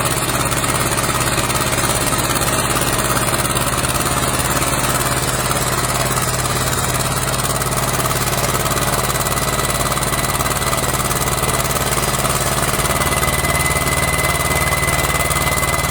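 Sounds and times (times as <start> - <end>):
tractor engine running: 0.0 - 15.9
thin steady whine: 11.6 - 15.9.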